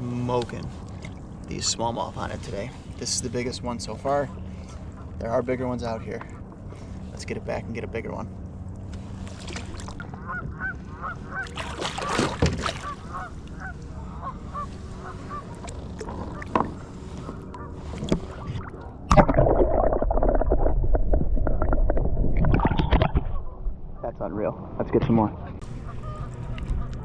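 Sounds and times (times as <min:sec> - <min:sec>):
geese honking: 0:10.1 - 0:18.8, 0:25.3 - 0:27.0.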